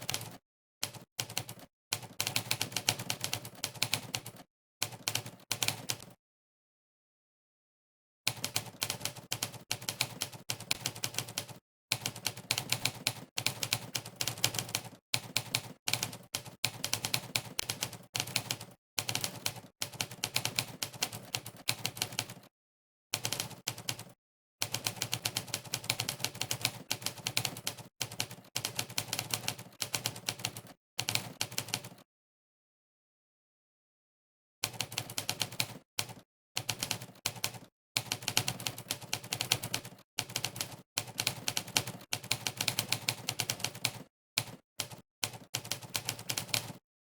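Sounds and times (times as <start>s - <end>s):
typewriter keystroke clacks: 8.3s - 22.4s, 34.7s - 46.8s.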